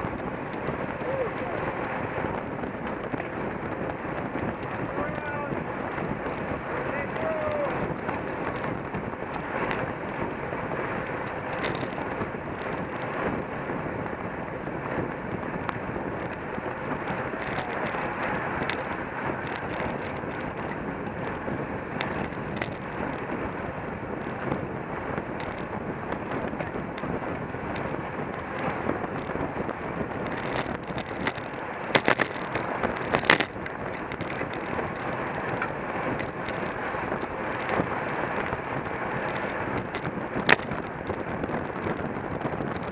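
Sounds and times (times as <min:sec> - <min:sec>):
bicycle tyre and drivetrain noise: 0:00.0 - 0:42.9
wind rushing over microphone: 0:00.0 - 0:42.9
sharp clatters: 0:25.2 - 0:42.9.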